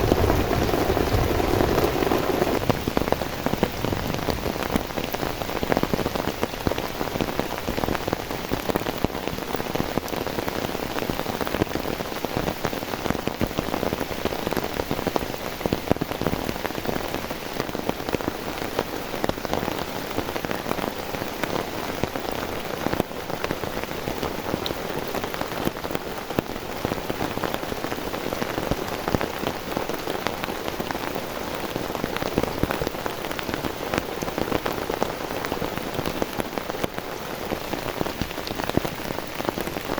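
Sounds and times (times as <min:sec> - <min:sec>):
heavy rain hissing: 0:00.0 - 0:11.2.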